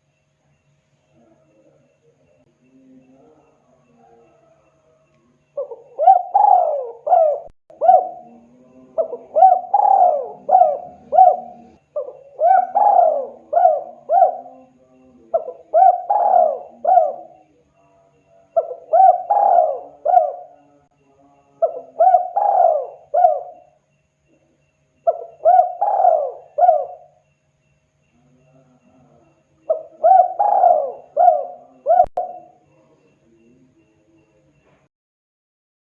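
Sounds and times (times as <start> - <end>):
dove cooing: 5.6 - 17.6, 18.5 - 20.8, 21.6 - 23.8, 25.0 - 27.2, 28.2 - 32.9.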